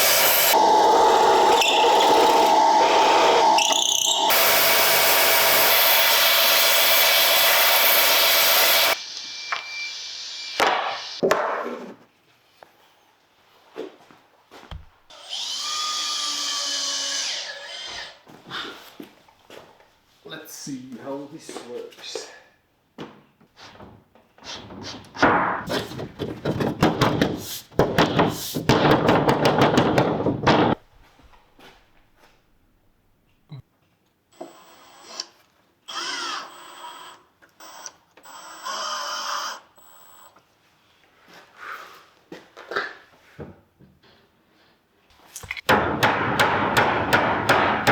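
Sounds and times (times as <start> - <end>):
power tool cutting wood: 0.0 - 11.2, 15.1 - 18.0
wood scraping and rattling: 24.8 - 30.8
wood knocks: 25.2 - 30.8.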